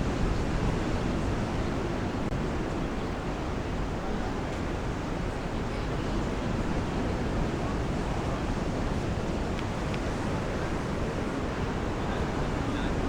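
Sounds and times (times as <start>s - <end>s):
sea surf washing onto beach: 5.9s - 13.0s.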